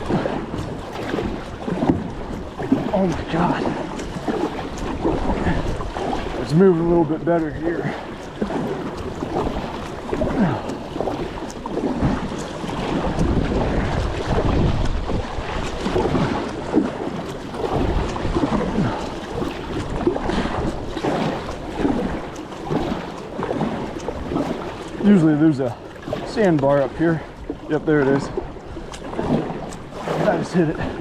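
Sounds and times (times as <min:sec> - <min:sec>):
water sloshing and splashing: 0:00.0 - 0:31.0
wind buffeting microphone: 0:00.0 - 0:31.0.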